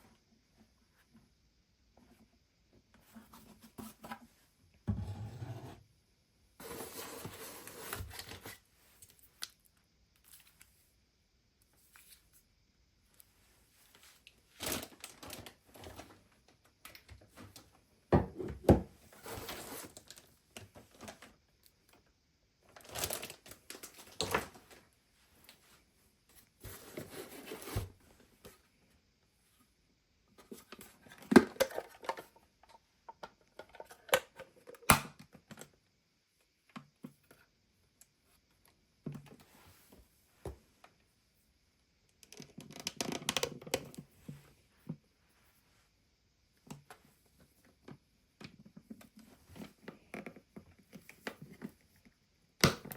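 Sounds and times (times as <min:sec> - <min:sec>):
plastic packaging rustling: 0:22.8 - 0:24.3.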